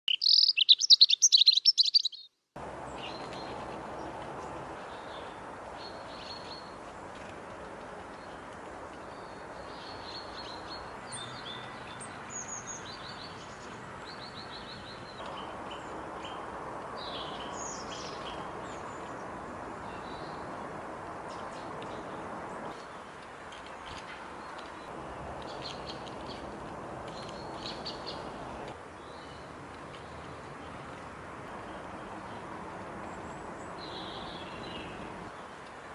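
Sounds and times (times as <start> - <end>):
small birds chirping: 0.0 - 2.4.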